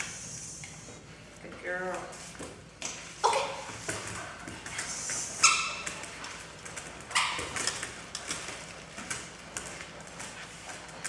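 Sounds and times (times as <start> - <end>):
puppy yipping: 5.4 - 6.0.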